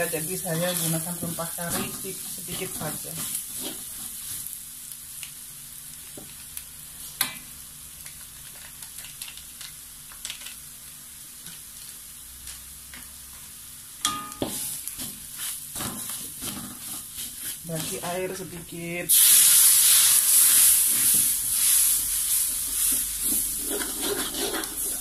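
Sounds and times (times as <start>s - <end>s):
metal spatula scraping a wok: 0.0s - 4.5s, 14.5s - 18.4s, 20.3s - 25.0s
spices sizzling in hot oil: 0.0s - 25.0s.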